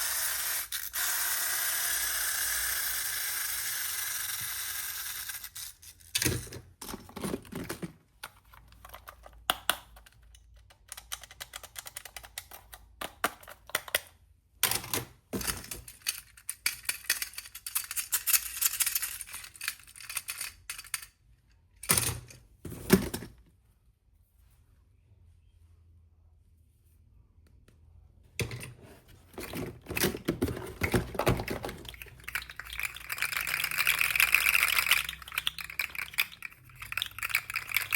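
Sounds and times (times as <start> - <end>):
plastic toy pieces clicking: 0.0 - 6.5, 8.3 - 14.8, 15.4 - 21.2, 29.4 - 37.9.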